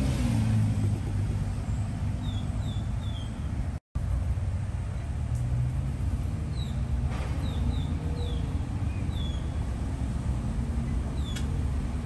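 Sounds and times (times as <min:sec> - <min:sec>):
road traffic rumble: 0:00.0 - 0:12.0
birds chirping: 0:01.6 - 0:03.7, 0:06.4 - 0:09.7, 0:10.8 - 0:11.6.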